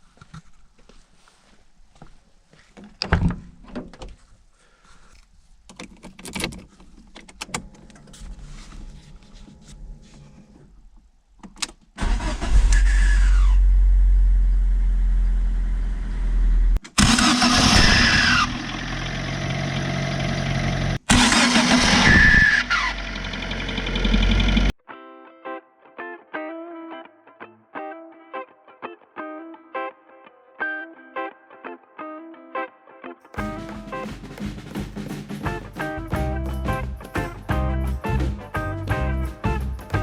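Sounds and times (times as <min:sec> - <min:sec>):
car engine running: 0:13.6 - 0:24.7
starter motor whine: 0:16.9 - 0:24.7.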